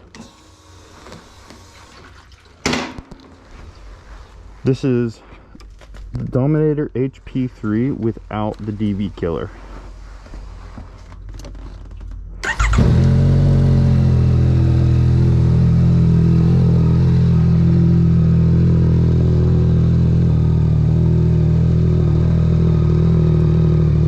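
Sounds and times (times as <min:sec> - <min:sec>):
motorcycle engine starting and idling: 0:11.3 - 0:24.0.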